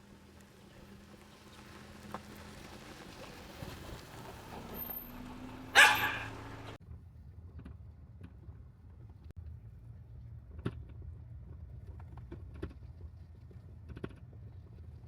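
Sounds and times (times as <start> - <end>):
car ride hum: 0.4 - 6.8
loud short call: 5.7 - 6.6.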